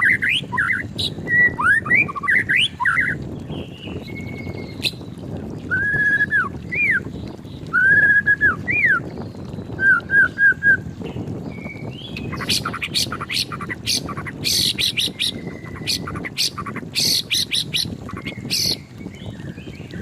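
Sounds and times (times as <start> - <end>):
bird singing in clear whistles: 0.0 - 3.2, 5.7 - 7.1, 7.7 - 10.8
harsh clicking bird chatter: 12.1 - 18.9.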